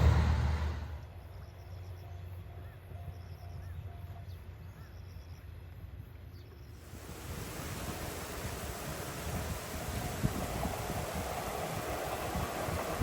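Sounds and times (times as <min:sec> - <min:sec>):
low steady rumble: 0:00.0 - 0:01.5
faint bird chirps: 0:01.0 - 0:05.5
broad hiss: 0:06.8 - 0:13.0.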